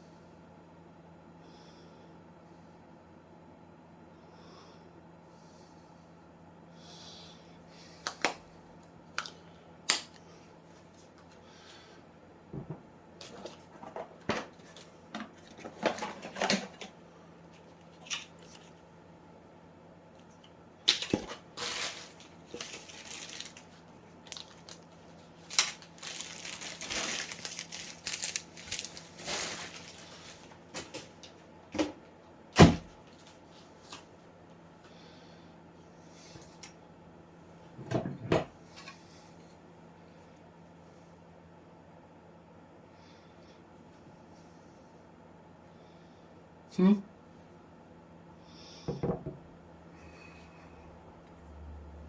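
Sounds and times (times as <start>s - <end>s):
faint steady hum: 0.0s - 52.0s
packaging rustling and crinkling: 13.2s - 16.9s, 20.9s - 31.4s.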